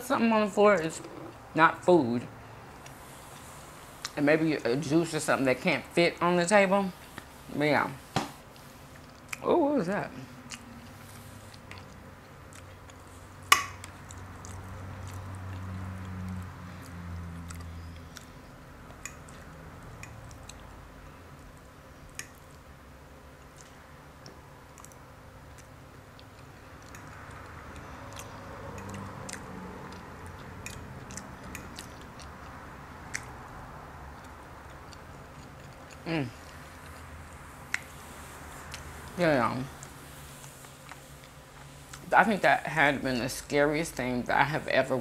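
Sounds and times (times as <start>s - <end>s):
close-up chewing: 8.4s - 9.4s, 10.2s - 42.1s
wet mouth clicks: 10.4s - 10.9s, 23.4s - 33.5s.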